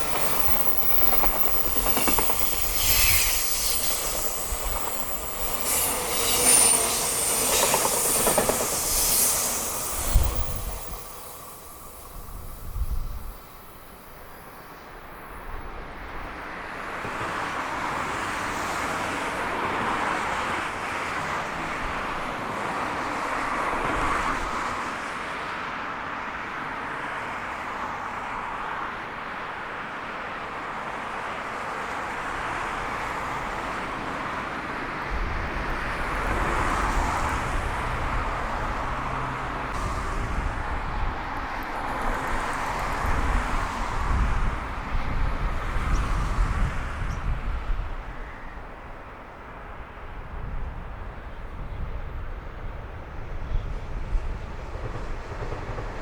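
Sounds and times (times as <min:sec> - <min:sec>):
wind buffeting microphone: 0:00.0 - 0:13.6, 0:35.0 - 0:49.0, 0:50.0 - 0:56.0
freight train passing: 0:00.0 - 0:56.0.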